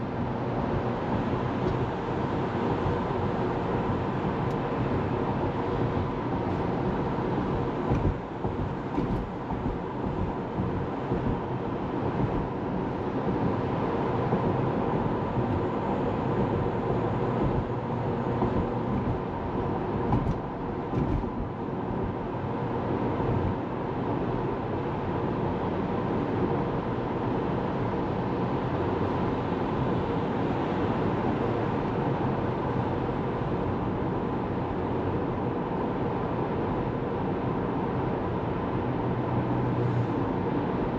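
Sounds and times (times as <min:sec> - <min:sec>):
tyres humming on road: 0:00.0 - 0:40.9.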